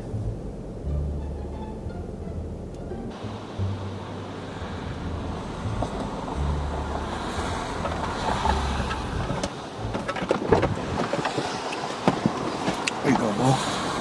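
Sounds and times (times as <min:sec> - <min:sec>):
bass music from car stereo: 0:00.0 - 0:10.9
car cabin rumbling hiss: 0:01.9 - 0:14.0.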